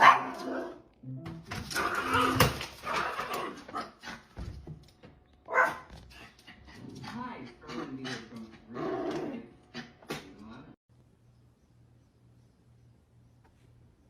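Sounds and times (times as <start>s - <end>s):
dog barking: 0.0s - 0.6s, 5.5s - 5.9s.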